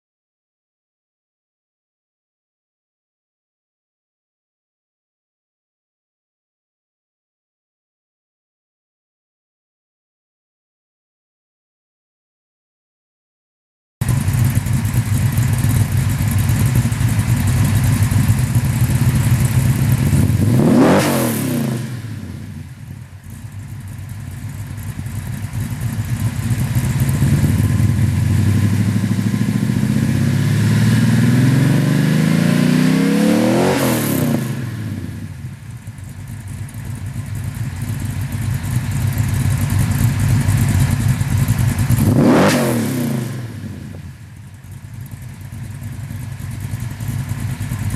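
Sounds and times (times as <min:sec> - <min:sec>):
car exhaust rumbling and revving: 0:14.0 - 0:47.9.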